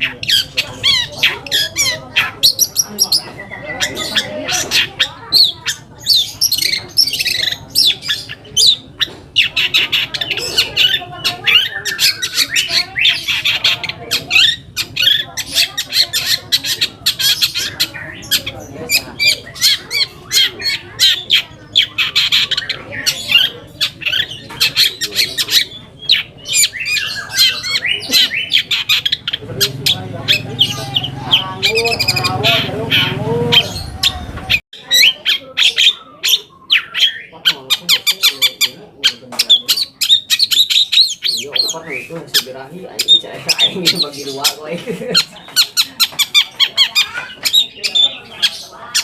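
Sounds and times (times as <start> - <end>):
bird harsh chattering song: 0.0 - 49.0.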